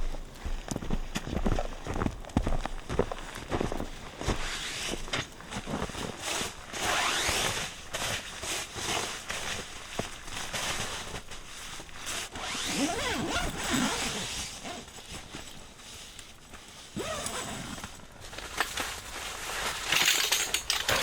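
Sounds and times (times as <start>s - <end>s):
zipper being pulled: 6.2s - 9.3s, 12.1s - 15.0s, 16.9s - 18.0s.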